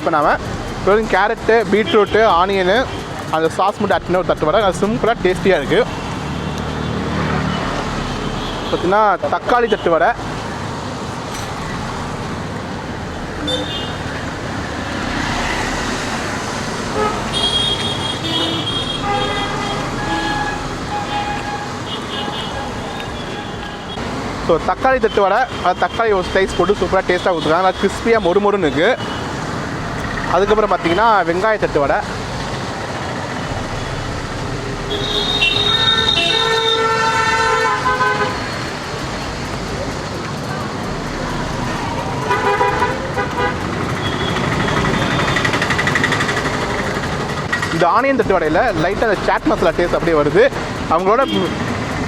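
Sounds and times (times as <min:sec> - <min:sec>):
road traffic noise: 0:00.0 - 0:52.0
vehicle horn honking: 0:13.4 - 0:14.1, 0:17.0 - 0:24.0, 0:34.8 - 0:38.6, 0:42.2 - 0:45.6.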